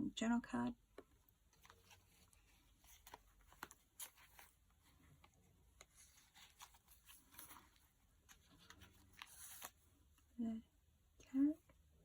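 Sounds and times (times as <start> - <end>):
paper pages rustling: 1.0 - 10.3.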